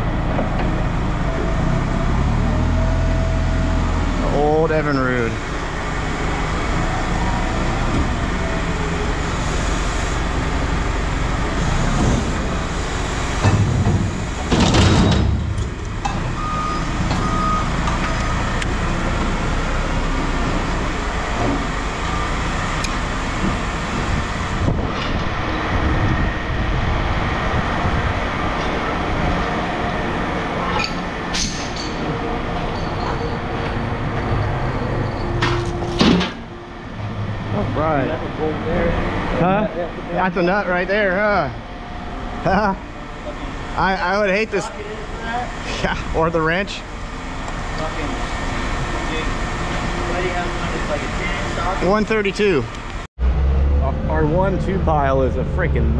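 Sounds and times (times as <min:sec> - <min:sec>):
heavy machinery diesel engine: 0:00.0 - 0:55.9
loud metal crash: 0:13.4 - 0:15.6.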